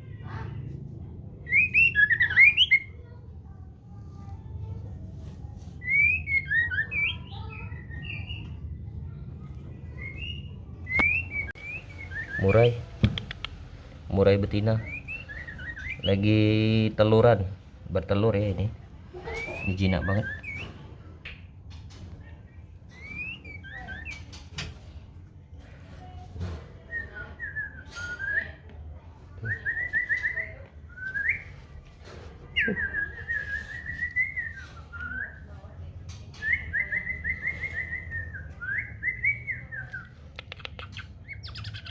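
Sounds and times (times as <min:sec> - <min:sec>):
bird singing whistled notes: 0:01.4 - 0:03.0, 0:05.8 - 0:08.5, 0:10.0 - 0:12.8, 0:14.8 - 0:16.3, 0:19.4 - 0:20.8, 0:22.9 - 0:24.4, 0:32.6 - 0:35.5, 0:36.3 - 0:40.2.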